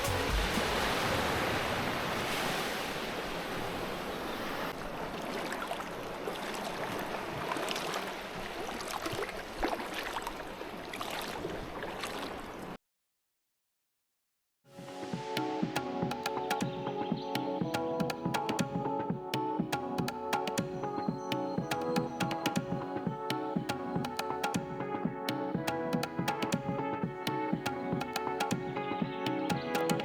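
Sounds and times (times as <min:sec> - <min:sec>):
surf washing onto beach: 0:00.0 - 0:08.6.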